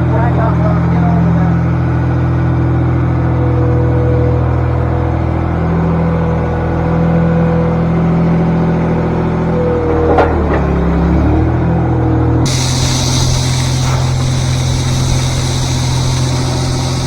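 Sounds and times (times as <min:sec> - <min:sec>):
tractor engine with whine: 0:02.2 - 0:17.0.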